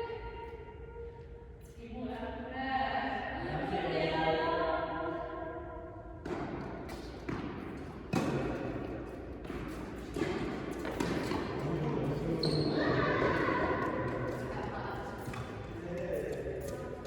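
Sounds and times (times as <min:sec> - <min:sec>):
reverberant hall background noise: 0:00.0 - 0:17.0
tennis ball hit and bouncing: 0:06.2 - 0:11.7.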